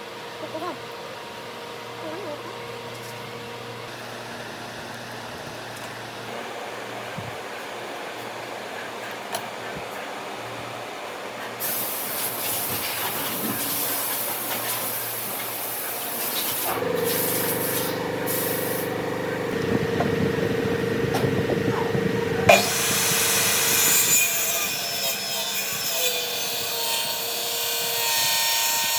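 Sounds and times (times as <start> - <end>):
loud hiss: 11.6 - 19.4
motor humming: 11.7 - 25.2.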